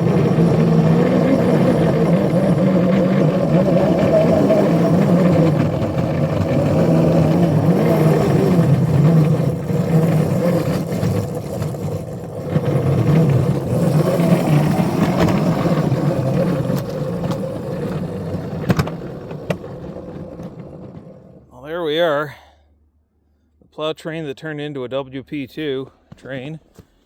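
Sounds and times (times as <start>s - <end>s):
locomotive engine running: 0.0s - 22.1s.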